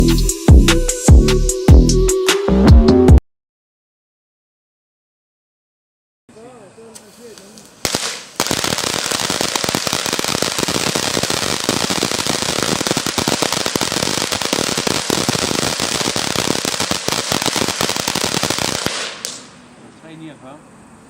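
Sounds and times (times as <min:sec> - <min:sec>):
fireworks crackling: 0:06.4 - 0:19.6.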